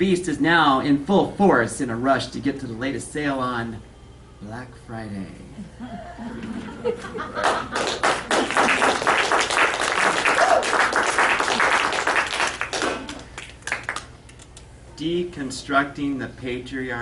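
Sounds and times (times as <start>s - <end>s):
audience applauding: 7.4s - 14.1s.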